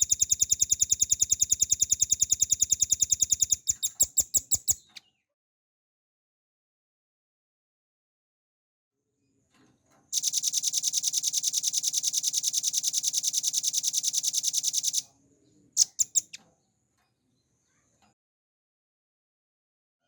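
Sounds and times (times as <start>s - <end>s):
bird singing rapid high trill: 0.0s - 5.0s, 10.2s - 15.1s, 15.8s - 16.4s.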